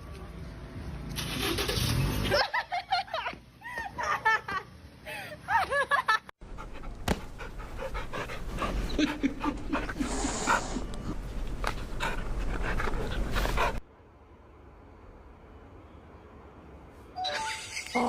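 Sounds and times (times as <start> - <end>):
animal panting: 6.4 - 13.8.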